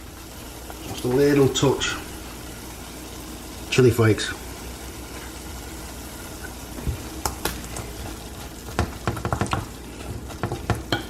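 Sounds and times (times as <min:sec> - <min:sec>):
vegetables sizzling in a frying pan: 0:00.0 - 0:11.0.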